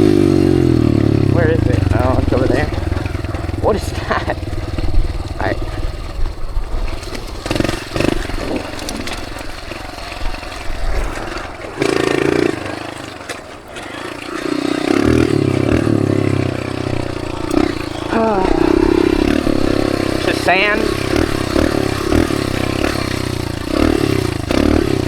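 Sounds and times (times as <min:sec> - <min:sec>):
dirt bike engine revving: 0:00.0 - 0:25.0
wind rush: 0:01.8 - 0:11.8.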